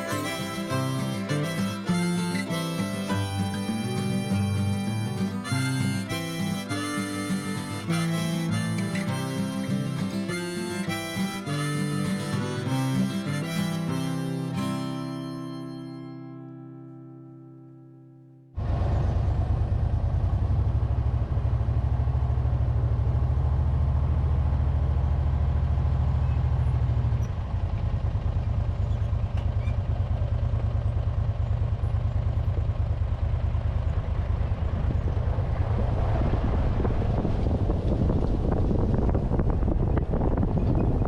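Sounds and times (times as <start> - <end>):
vehicle engine rumbling: 0.0 - 15.6, 18.6 - 41.0
wind buffeting microphone: 33.9 - 41.0.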